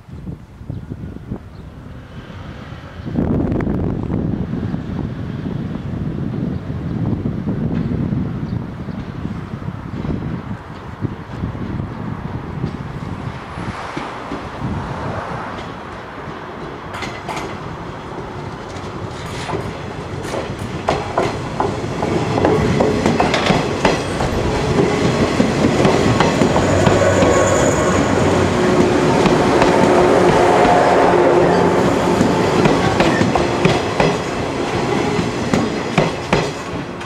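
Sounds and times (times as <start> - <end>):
train wheels clicking over rail joints: 15.5 - 30.9, 32.1 - 37.0
high wheel squeal: 26.0 - 33.3.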